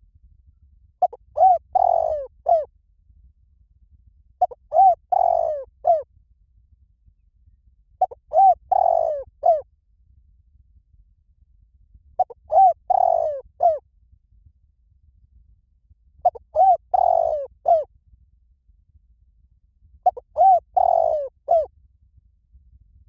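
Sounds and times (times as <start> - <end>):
dove cooing: 1.0 - 2.7, 4.4 - 6.0, 8.0 - 9.6, 12.2 - 13.8, 16.2 - 17.9, 20.0 - 21.7.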